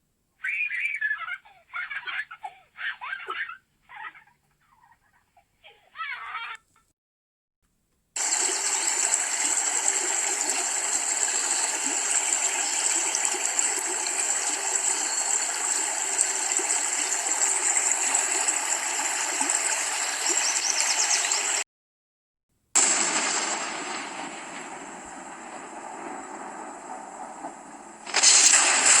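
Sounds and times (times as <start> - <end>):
running water rushing: 8.2 - 21.6, 22.8 - 29.0.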